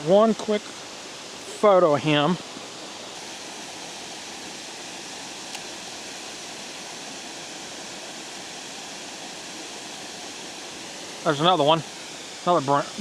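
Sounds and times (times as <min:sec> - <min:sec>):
water rushing over a spillway: 0:00.0 - 0:13.0.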